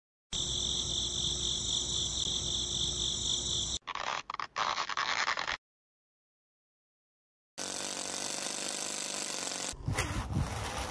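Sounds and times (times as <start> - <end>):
insect chirring: 0.4 - 4.8
plastic tube rubbing and scraping: 9.8 - 10.9.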